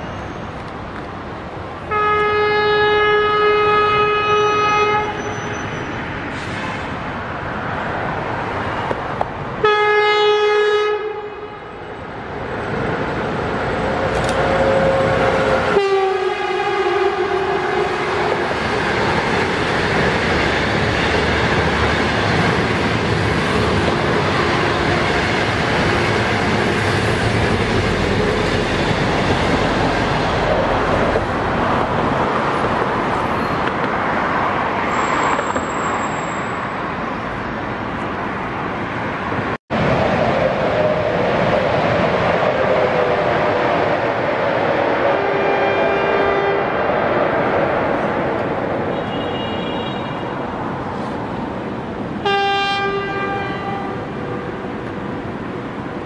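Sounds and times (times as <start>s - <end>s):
locomotive horn blasts: 1.9s - 5.5s, 9.6s - 11.7s, 14.4s - 18.4s, 45.2s - 46.7s, 48.9s - 50.4s, 52.2s - 54.2s
train coaches rolling on rails: 11.7s - 56.0s.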